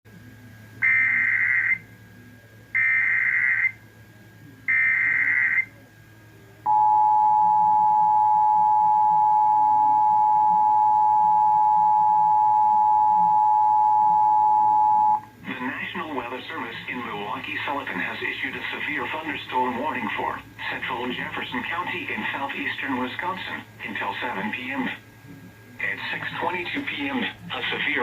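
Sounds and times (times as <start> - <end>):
steady attention tone: 6.6 - 15.3.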